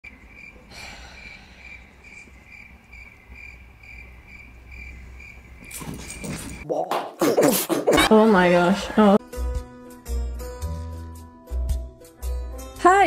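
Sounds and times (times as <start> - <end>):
cricket chirping: 0.0 - 6.6.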